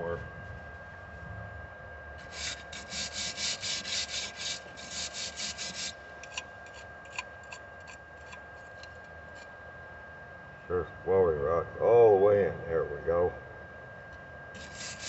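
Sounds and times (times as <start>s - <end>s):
scraping slag off a weld: 2.2s - 7.6s, 14.6s - 15.0s.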